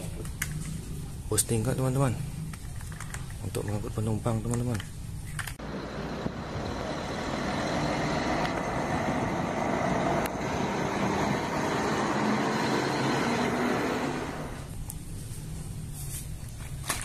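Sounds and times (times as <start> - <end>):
vehicle engine running: 5.6 - 14.7.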